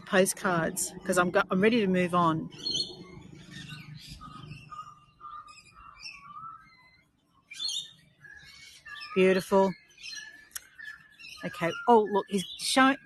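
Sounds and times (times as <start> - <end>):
birds chirping and calling: 0.0 - 13.0.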